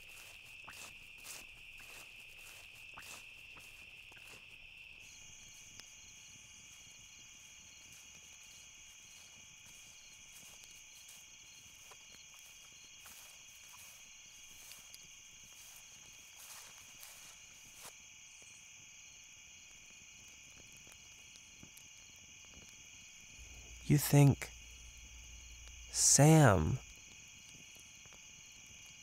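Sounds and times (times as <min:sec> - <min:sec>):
crickets trilling: 0:00.0 - 0:29.0
higher-pitched insect trill: 0:00.0 - 0:29.0.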